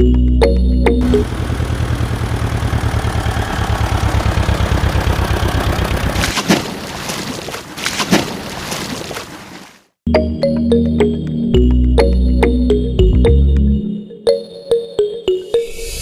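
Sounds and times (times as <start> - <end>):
heavy vehicle engine running: 1.0 - 6.4.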